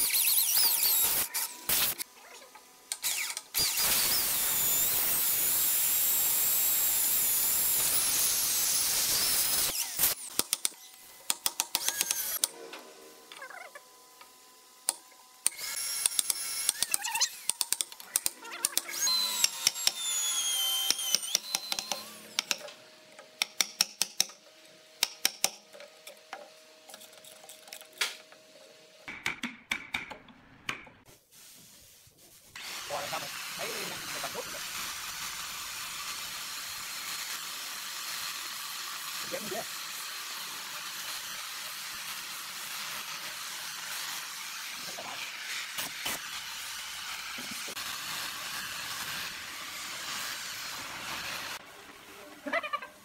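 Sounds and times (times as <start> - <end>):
electric drill boring wood: 0.0 - 2.1, 2.9 - 12.5, 14.9 - 22.7, 32.6 - 51.6.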